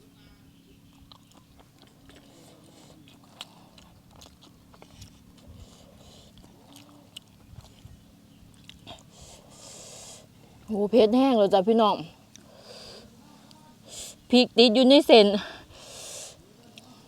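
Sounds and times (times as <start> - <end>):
person chewing noodles: 0.9 - 10.2.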